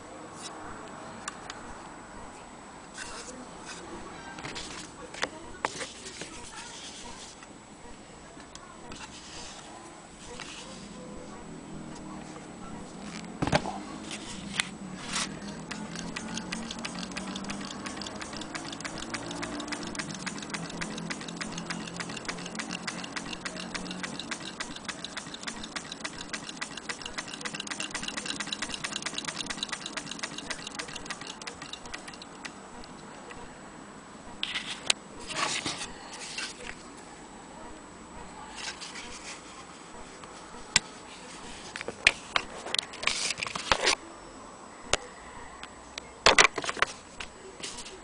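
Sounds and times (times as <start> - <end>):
sewing machine ticking: 15.6 - 32.6.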